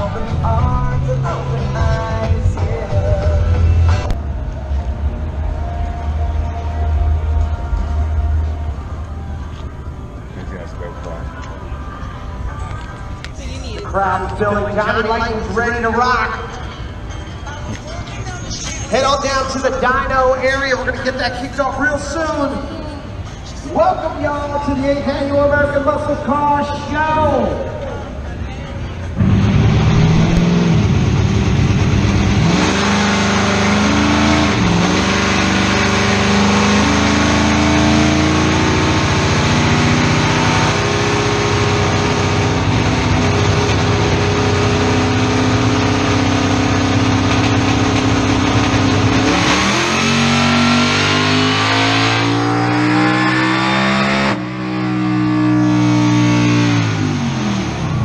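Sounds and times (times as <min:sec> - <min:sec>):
car engine revving at full throttle: 0:29.1 - 0:58.0.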